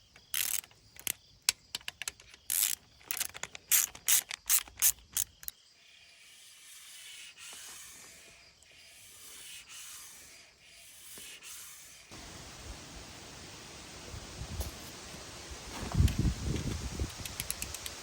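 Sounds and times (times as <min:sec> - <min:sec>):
ratchet wrench clicking: 0:00.3 - 0:01.2, 0:01.8 - 0:05.5, 0:17.0 - 0:18.0
steady hiss: 0:06.2 - 0:18.0.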